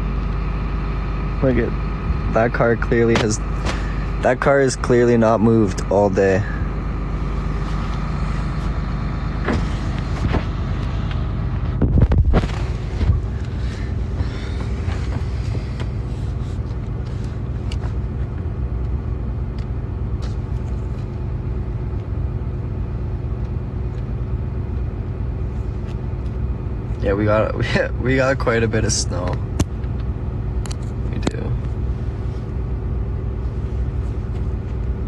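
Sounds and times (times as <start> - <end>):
truck engine humming: 0.0 - 35.0.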